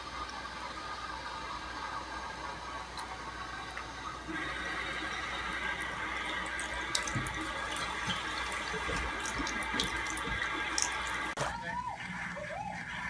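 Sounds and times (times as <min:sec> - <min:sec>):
tap water running into sink: 0:02.9 - 0:11.4
water drips and splashes: 0:02.9 - 0:11.4.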